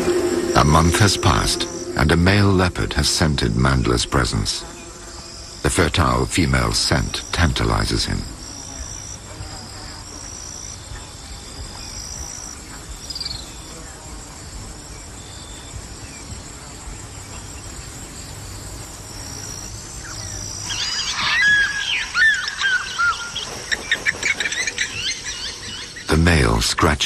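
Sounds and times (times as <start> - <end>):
insects trilling: 0.0 - 27.0
steady background hiss: 0.0 - 27.0
bird whistled calls: 20.1 - 26.1.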